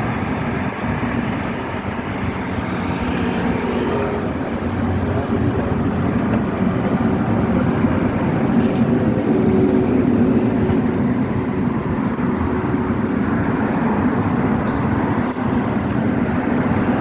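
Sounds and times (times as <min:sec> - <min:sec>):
tram rumbling: 0:00.0 - 0:17.0.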